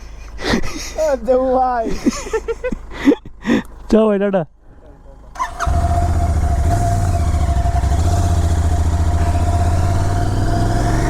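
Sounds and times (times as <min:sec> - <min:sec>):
vehicle low rumble: 0:02.4 - 0:11.0
constant whine: 0:04.8 - 0:11.0.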